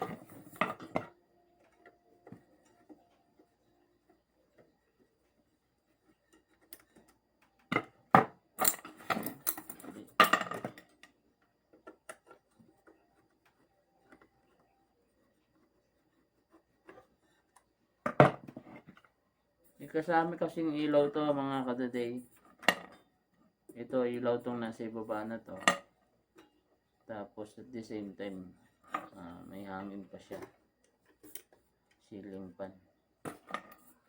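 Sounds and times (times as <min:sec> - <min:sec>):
clicks and clatter of hard parts: 0:06.7 - 0:11.2.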